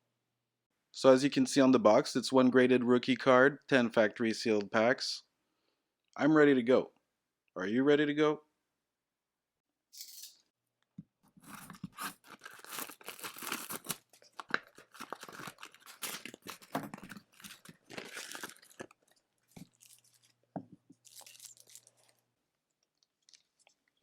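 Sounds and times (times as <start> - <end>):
packaging tearing and crinkling: 11.4 - 20.4, 21.0 - 22.2.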